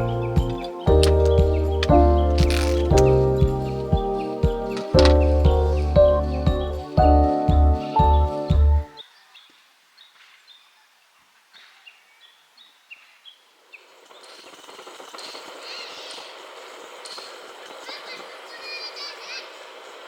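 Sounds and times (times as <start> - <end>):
music: 0.0 - 9.0
small birds chirping: 0.0 - 19.6.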